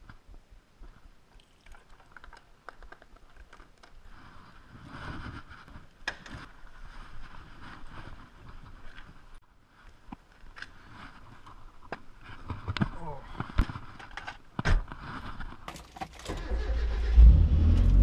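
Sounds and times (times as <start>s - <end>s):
car engine rumble: 16.5s - 18.0s.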